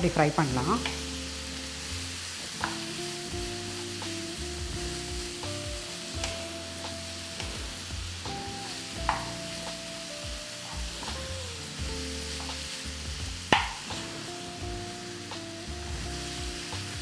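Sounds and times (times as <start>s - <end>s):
meat sizzling in a pan: 0.0s - 17.0s
soft background music: 0.0s - 17.0s
wooden spatula knocking on pan: 9.0s - 9.4s, 13.5s - 13.9s.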